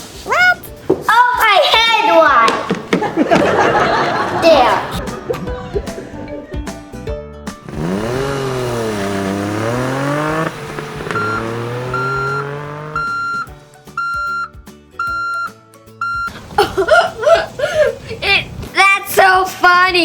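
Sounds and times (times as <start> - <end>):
pitched engine hum: 5.0 - 14.4
vehicle reversing beeper: 11.0 - 16.4.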